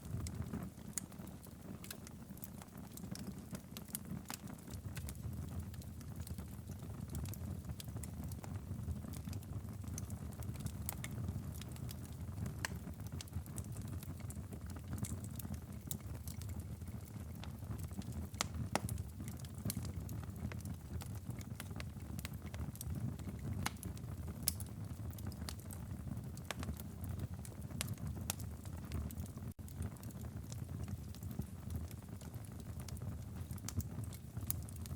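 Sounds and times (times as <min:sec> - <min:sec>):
wood fire crackling: 0:00.0 - 0:34.9.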